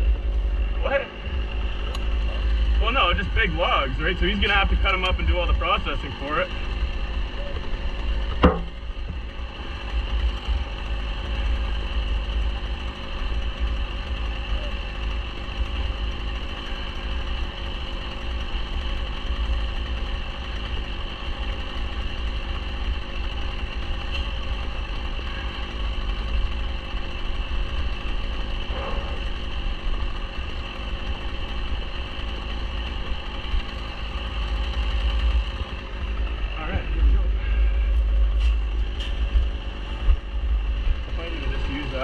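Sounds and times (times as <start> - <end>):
low rumble: 0.0 - 11.7, 34.9 - 42.0
engine idling: 0.0 - 42.0.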